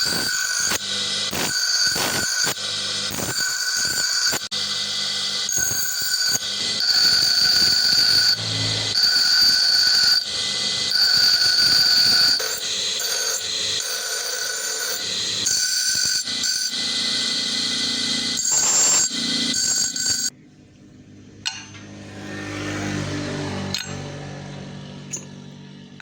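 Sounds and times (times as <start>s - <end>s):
power tool grinding metal: 0.0s - 20.3s.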